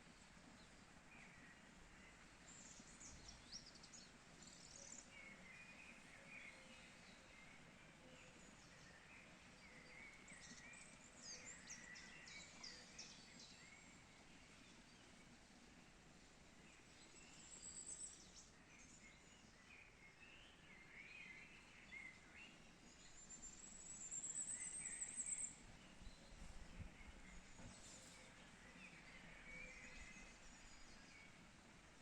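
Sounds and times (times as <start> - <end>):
steady soft hiss: 0.0 - 32.0.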